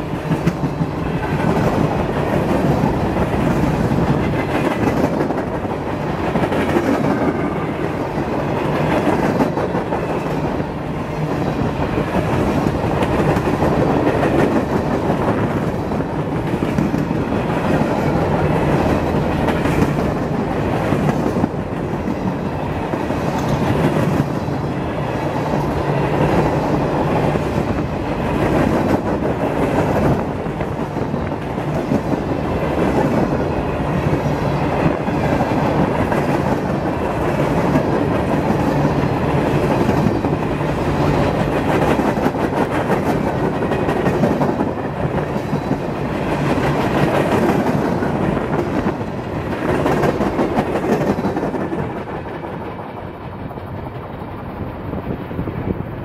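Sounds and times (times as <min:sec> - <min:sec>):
wheels clicking over rail joints: 0:00.0 - 0:55.5
train wheels rumbling on rails: 0:00.0 - 0:56.0.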